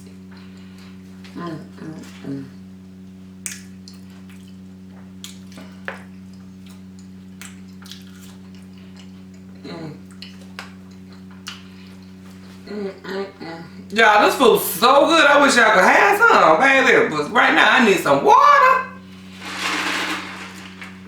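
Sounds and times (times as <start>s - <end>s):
low electrical hum: 0.0s - 21.0s
person humming: 1.3s - 2.6s, 9.6s - 10.0s, 12.6s - 13.9s
close-miked eating and chewing: 3.8s - 14.0s.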